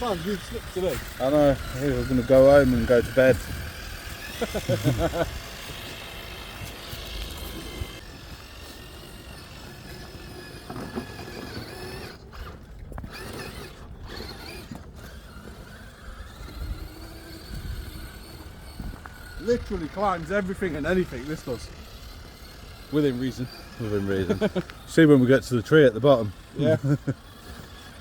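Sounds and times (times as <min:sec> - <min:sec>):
toy car electric motor whining: 0:00.0 - 0:28.0.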